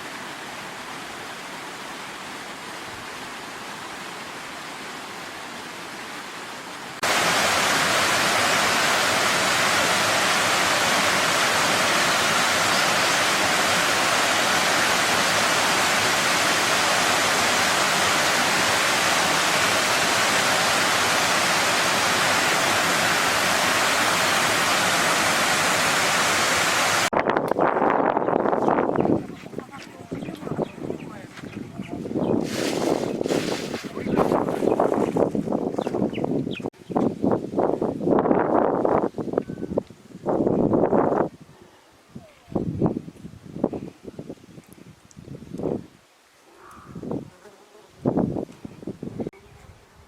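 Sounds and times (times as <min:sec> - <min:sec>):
stream rushing: 0:00.0 - 0:27.2, 0:28.1 - 0:35.6.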